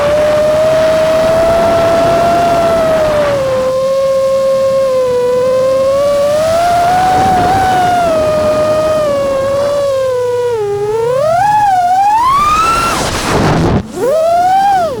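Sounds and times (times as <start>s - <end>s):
drone propellers whining: 0.0s - 15.0s
rushing noise: 11.1s - 14.2s.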